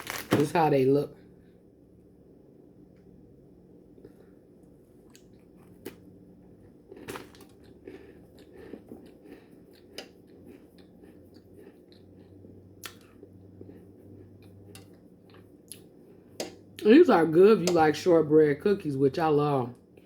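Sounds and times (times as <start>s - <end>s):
person chewing cookie: 3.9s - 16.8s.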